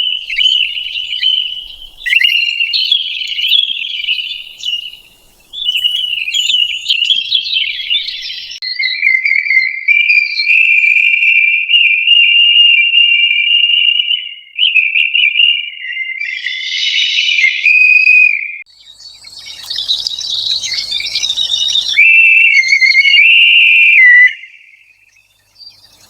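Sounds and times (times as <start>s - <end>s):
high chirping: 0.0s - 8.6s, 18.8s - 26.0s
high wavering whistling tone: 0.0s - 9.4s, 19.2s - 26.0s.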